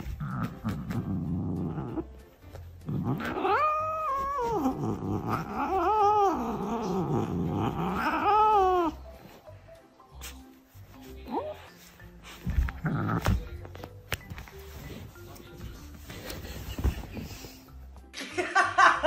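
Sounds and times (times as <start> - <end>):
cat growling: 0.0 - 2.1, 2.8 - 9.0, 12.6 - 13.6
cat yowling: 3.2 - 9.0.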